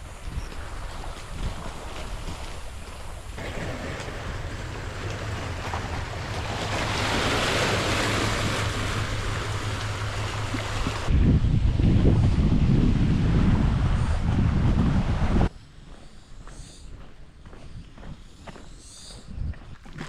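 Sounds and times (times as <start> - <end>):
sea waves washing on shore: 0.0 - 11.2
wind buffeting microphone: 0.0 - 20.0.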